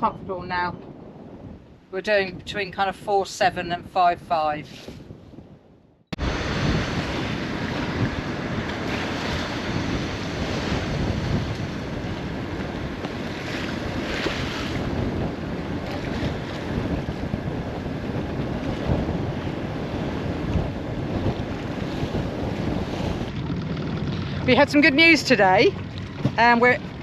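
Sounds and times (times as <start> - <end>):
wind buffeting microphone: 0.0 - 27.0
waves rushing along hull: 6.1 - 27.0.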